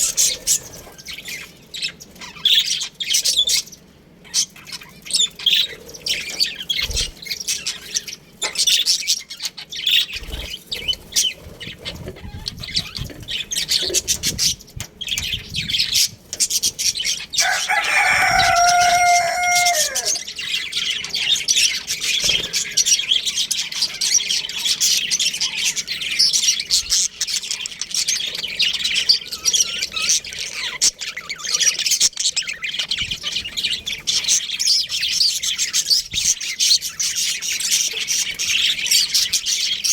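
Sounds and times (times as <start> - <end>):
budgies chattering and chirping: 0.0 - 39.9
rooster crowing: 17.3 - 20.6.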